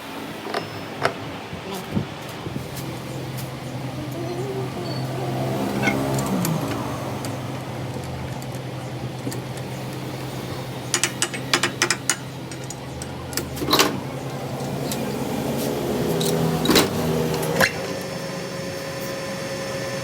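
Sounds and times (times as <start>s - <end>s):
steady machine hum: 0.0s - 20.0s
sharp clicks and knocks: 10.9s - 15.1s.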